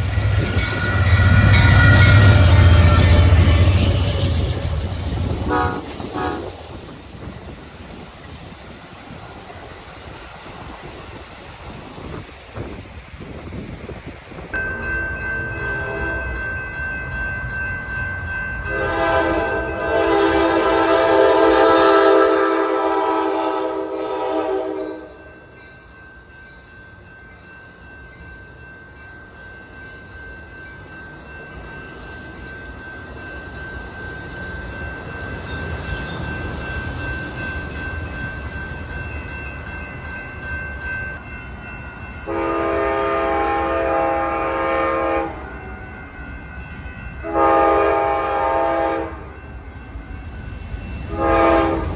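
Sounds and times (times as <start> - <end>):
train rumble: 0.0 - 26.8
train horn blast: 0.3 - 3.9, 5.4 - 6.6, 15.6 - 16.4, 18.7 - 25.2, 42.3 - 45.5, 47.2 - 49.3, 51.1 - 51.9.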